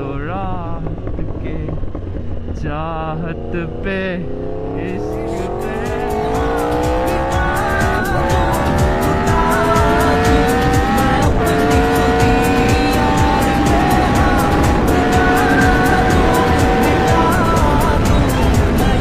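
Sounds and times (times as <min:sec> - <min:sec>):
motorcycle engine accelerating: 0:00.0 - 0:19.0
song with steady beat: 0:04.9 - 0:19.0.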